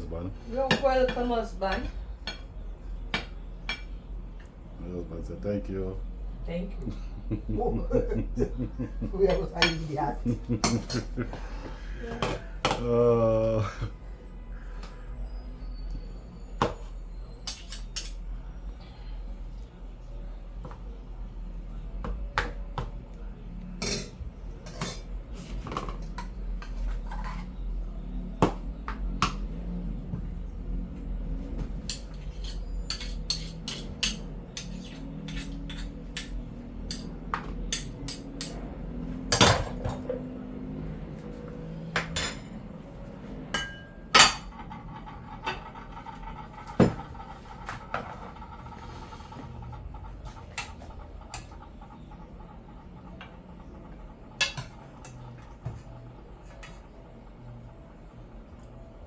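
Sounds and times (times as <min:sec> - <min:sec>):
utensils clinking on pots and plates: 0:00.5 - 0:04.0, 0:08.4 - 0:12.9, 0:16.6 - 0:18.4, 0:23.7 - 0:27.7, 0:31.5 - 0:51.6, 0:54.4 - 0:57.0.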